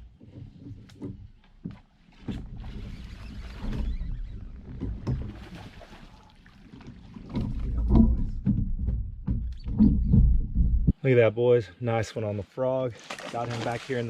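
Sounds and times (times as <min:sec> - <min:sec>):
water splashing and sloshing: 0:00.0 - 0:11.0, 0:12.9 - 0:14.0
knocks and bumps: 0:06.9 - 0:11.0
low rumble on microphone: 0:07.0 - 0:11.0.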